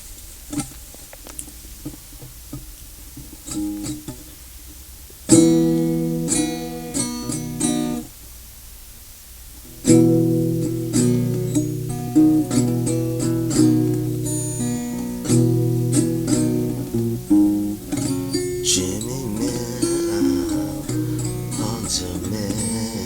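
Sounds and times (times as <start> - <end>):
guitar picked notes: 5.3 - 8.1, 9.7 - 23.0
guitar strummed chords: 5.3 - 8.1, 9.7 - 23.0.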